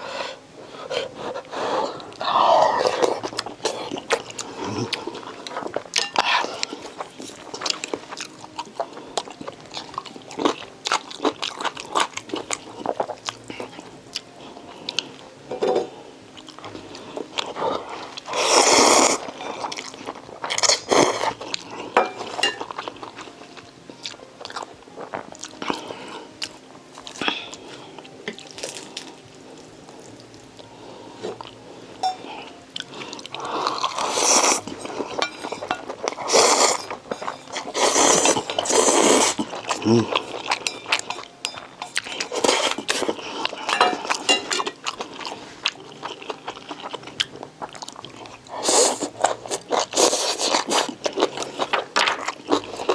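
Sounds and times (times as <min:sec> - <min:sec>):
person biting and chewing: 0:32.8 - 0:52.9.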